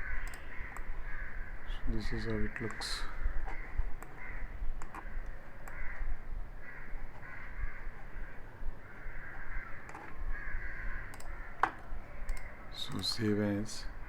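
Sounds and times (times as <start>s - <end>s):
crows cawing: 0.0s - 12.6s
mouse clicks: 0.2s - 0.9s, 2.6s - 4.2s, 4.8s - 6.0s, 11.1s - 13.2s.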